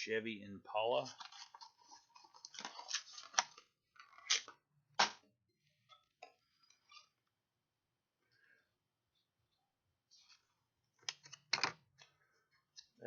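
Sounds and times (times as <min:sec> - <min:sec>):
plastic packaging crinkling: 0:01.0 - 0:04.5.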